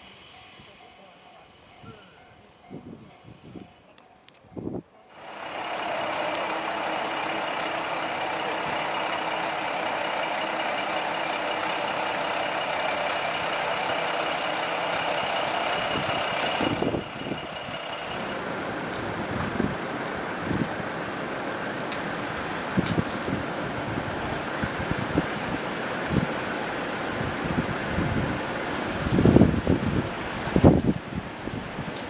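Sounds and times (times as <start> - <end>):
diesel engine running: 5.1 - 32.0
high whine: 5.5 - 21.1.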